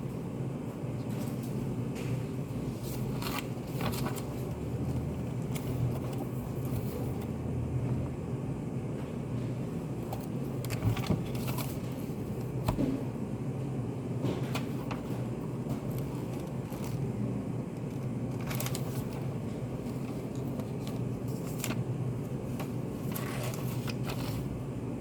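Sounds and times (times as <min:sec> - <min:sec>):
ventilation hum: 0:00.0 - 0:25.0
small clicks and rustles: 0:17.8 - 0:21.8.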